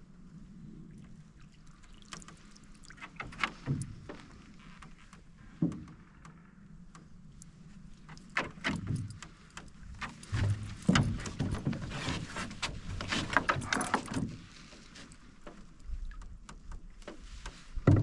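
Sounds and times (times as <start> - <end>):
paddle splashing in water: 0.8 - 4.6
knocks on canoe: 17.8 - 18.0.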